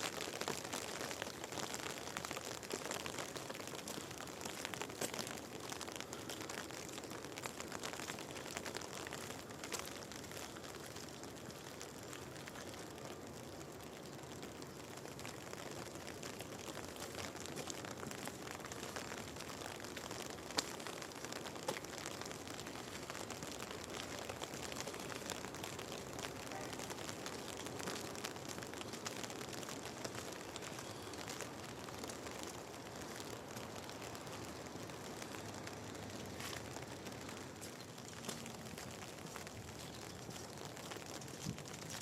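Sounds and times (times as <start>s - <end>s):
rain hissing: 0.0s - 42.0s
raindrops ticking close by: 0.0s - 42.0s.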